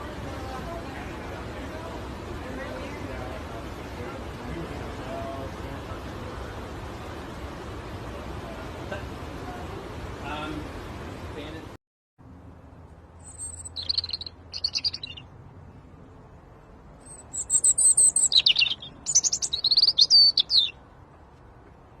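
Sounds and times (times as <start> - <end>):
birds chirping: 13.2 - 15.9, 16.6 - 21.0.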